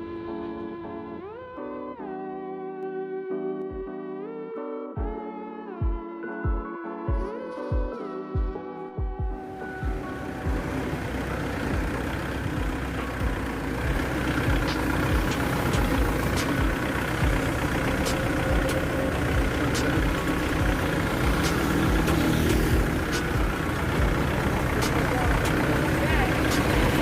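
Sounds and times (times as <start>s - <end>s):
engine idling with low thump: 8.4s - 27.0s.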